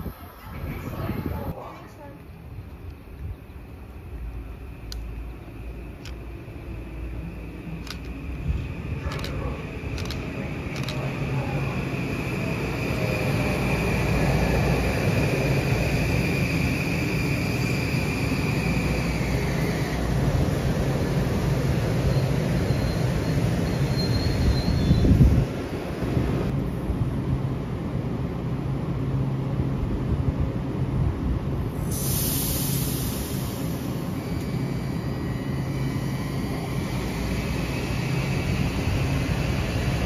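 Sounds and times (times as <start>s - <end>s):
train wheels rumbling: 0.0s - 28.9s
high wheel squeal: 21.9s - 25.3s.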